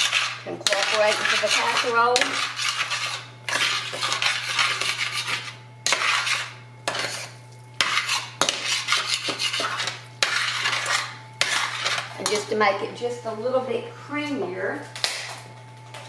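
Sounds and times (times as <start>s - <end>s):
utensil scraping in a skillet: 0.0s - 12.6s
steady low hum: 0.0s - 16.0s.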